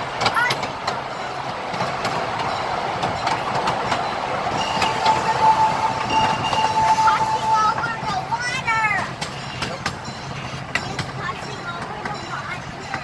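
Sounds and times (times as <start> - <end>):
miniature train rolling on track: 0.0 - 13.0
high-pitched squeal: 4.5 - 8.2.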